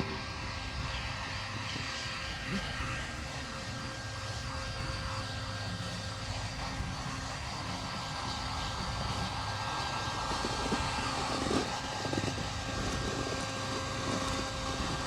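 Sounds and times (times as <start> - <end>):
small motor humming: 0.0 - 15.0.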